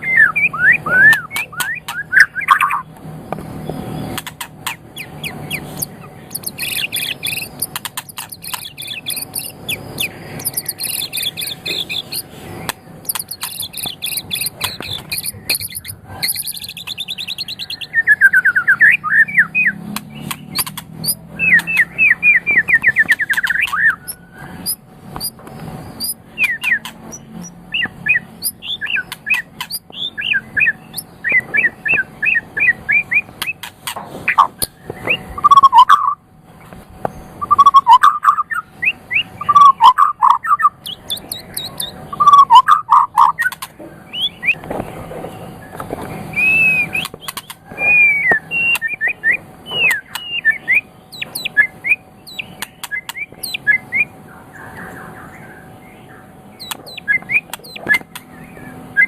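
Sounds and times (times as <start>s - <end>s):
songbird singing: 0.0s - 59.0s
sharp clicks: 0.9s - 17.6s, 19.9s - 21.9s, 22.7s - 36.0s, 40.8s - 42.0s, 43.2s - 43.8s, 46.9s - 49.0s, 52.3s - 53.6s, 56.6s - 58.3s.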